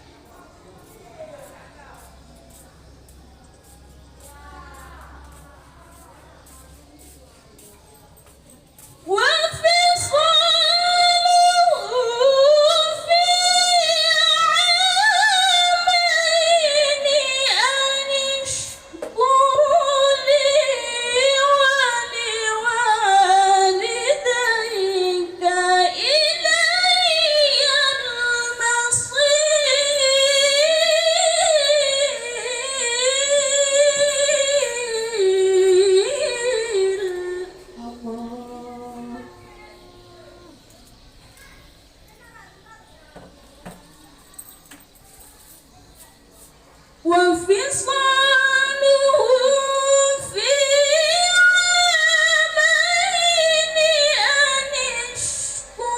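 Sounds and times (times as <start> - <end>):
woman reciting melodically: 8.9 - 40.7, 47.0 - 55.9.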